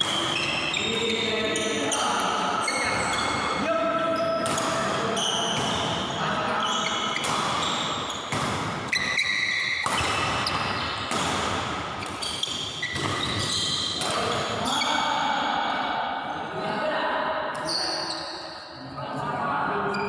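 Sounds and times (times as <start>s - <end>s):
rackets striking shuttlecock: 0.0s - 0.6s, 4.4s - 6.0s, 6.9s - 14.4s
shoes squeaking on court floor: 0.0s - 14.9s, 17.6s - 18.7s.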